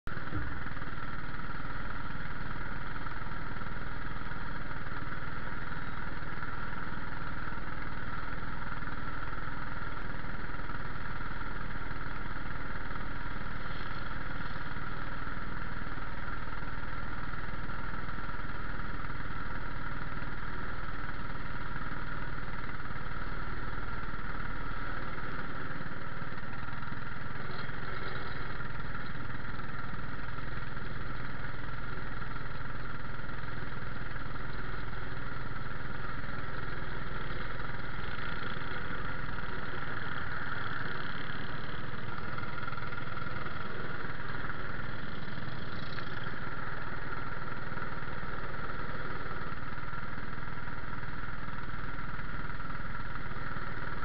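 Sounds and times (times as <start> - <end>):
small car engine idling: 0.1 - 54.0.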